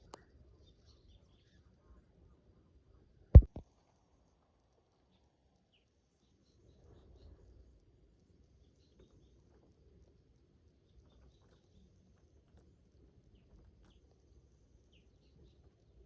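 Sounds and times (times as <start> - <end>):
faint low background noise: 0.0 - 16.0
sharp knock: 3.4 - 3.6
softer knock: 3.4 - 3.6.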